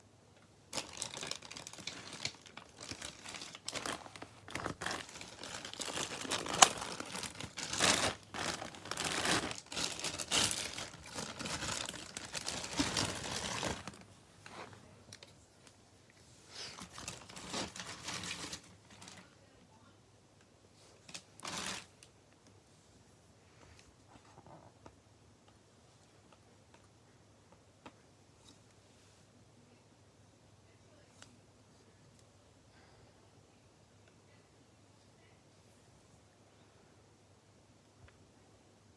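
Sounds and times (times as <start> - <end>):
packaging crinkling and tearing: 0.7 - 15.3, 16.6 - 19.2, 21.0 - 22.0.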